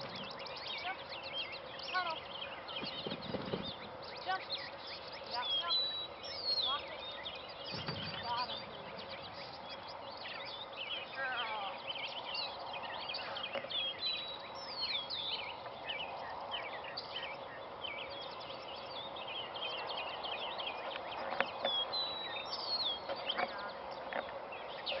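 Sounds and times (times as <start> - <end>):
birds chirping and whistling: 0.0 - 25.0
outdoor background hum: 0.0 - 25.0.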